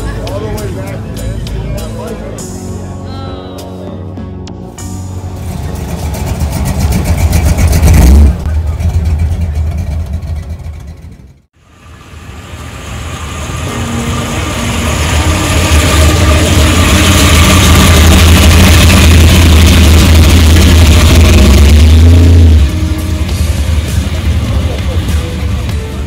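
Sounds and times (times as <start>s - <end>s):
car engine with deep exhaust rumble: 5.2s - 26.0s.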